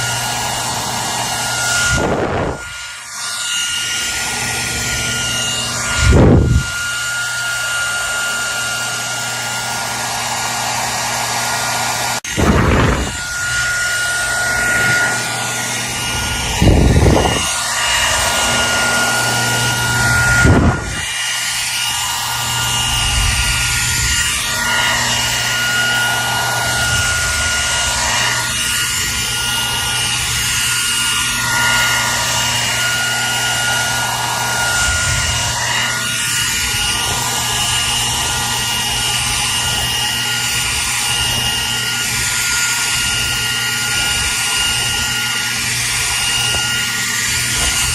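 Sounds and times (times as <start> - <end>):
hair dryer running: 0.0 - 47.9
low bumps: 12.3 - 30.6.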